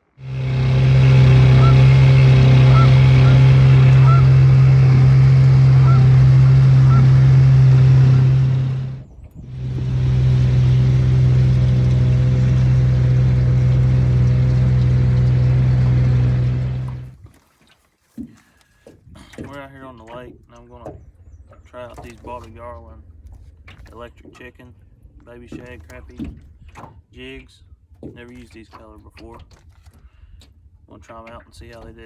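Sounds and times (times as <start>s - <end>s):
engine running steadily: 0.0s - 17.2s.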